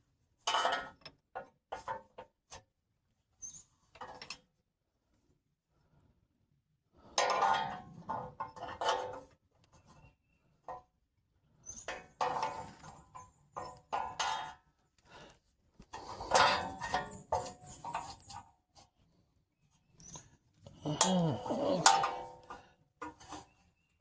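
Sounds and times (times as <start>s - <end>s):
hand tools clinking on metal: 20.7s - 22.4s.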